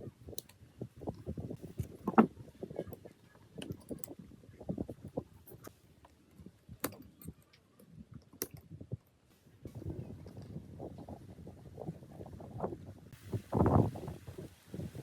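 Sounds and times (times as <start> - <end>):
clicks of tools and metal parts: 6.8 - 9.2.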